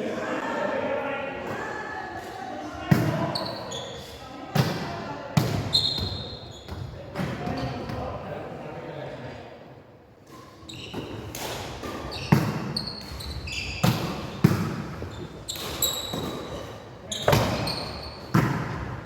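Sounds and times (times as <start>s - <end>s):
shoes squeaking on court floor: 3.2s - 4.2s, 5.5s - 8.0s, 10.3s - 19.0s
volleyball slaps echoing: 11.0s - 16.5s, 17.3s - 19.0s.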